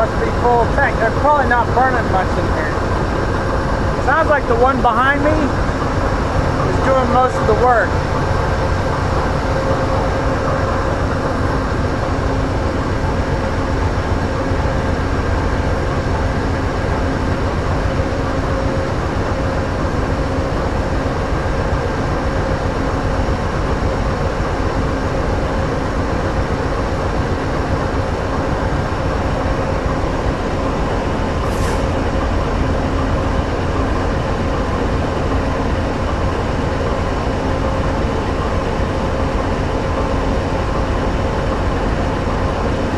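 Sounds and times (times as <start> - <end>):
diesel locomotives idling: 0.0 - 42.9
steady hum: 0.0 - 42.9.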